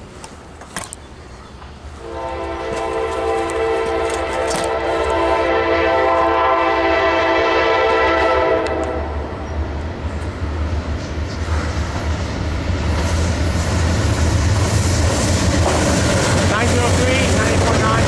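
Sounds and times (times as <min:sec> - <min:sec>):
diesel locomotive engines rumbling: 0:00.0 - 0:18.0
locomotive air horn chord: 0:02.0 - 0:09.3.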